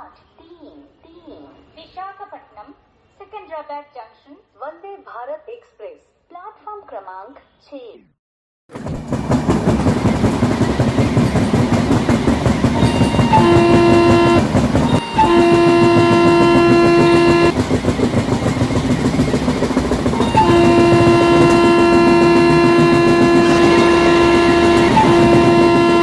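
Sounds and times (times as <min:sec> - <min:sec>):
train rumbling past: 0:08.7 - 0:26.0
train horn blasts: 0:11.4 - 0:17.6, 0:19.6 - 0:26.0.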